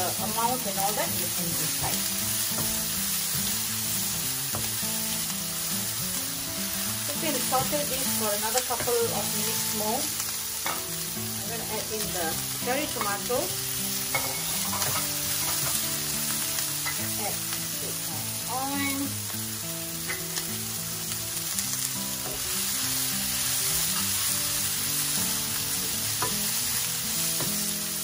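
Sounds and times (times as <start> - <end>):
vegetables sizzling in a frying pan: 0.0 - 28.0
spatula scraping and tapping pan: 14.1 - 17.2, 25.8 - 26.6, 27.3 - 27.6.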